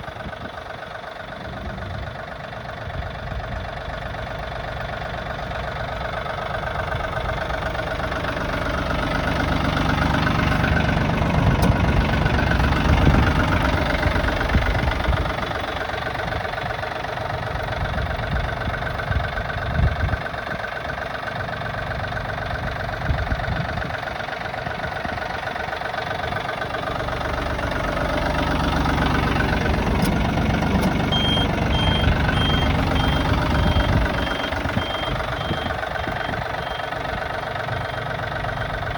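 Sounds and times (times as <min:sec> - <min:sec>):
tractor diesel engine knocking: 0:00.0 - 0:38.9
high repeating beep: 0:31.1 - 0:36.9.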